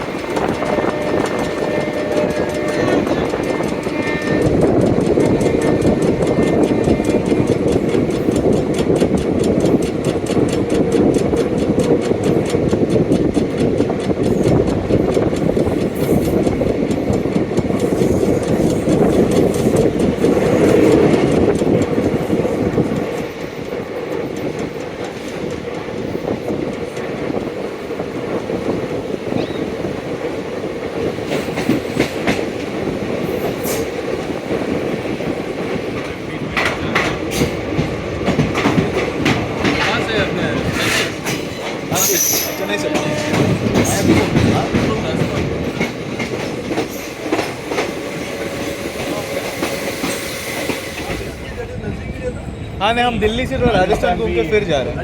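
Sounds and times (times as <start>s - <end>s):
train wheels clickety-clack: 0.0s - 55.0s.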